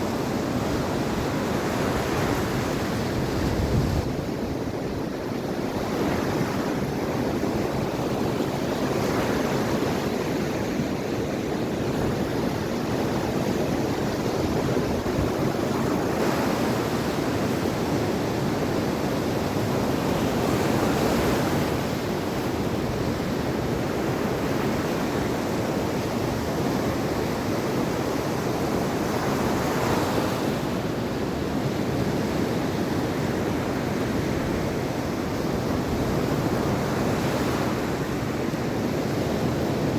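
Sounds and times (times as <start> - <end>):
waves breaking on shore: 0.0 - 39.9
wind buffeting microphone: 0.1 - 16.5.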